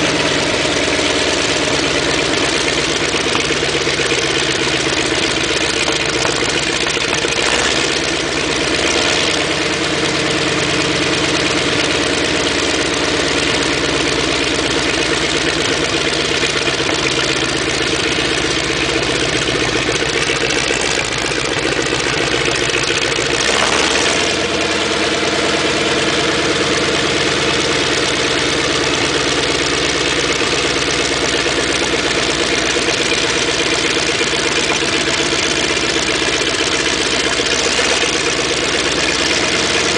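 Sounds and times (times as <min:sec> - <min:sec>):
tank engine idling: 0:00.0 - 0:39.9.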